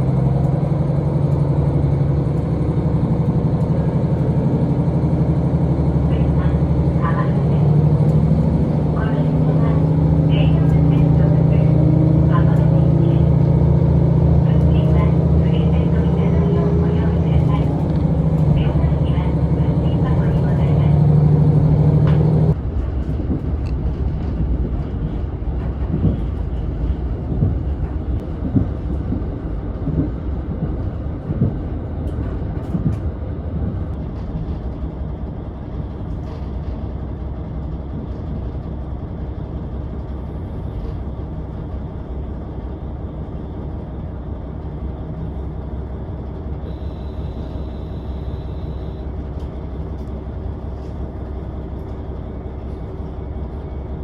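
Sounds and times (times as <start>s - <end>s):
railcar engine drone: 0.0s - 54.0s
wheels rumbling on rails: 0.0s - 54.0s
brief high tone: 46.7s - 49.0s.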